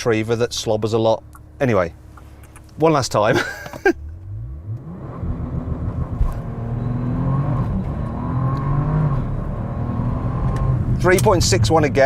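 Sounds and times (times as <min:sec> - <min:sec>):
car engine accelerating hard: 0:04.0 - 0:12.0.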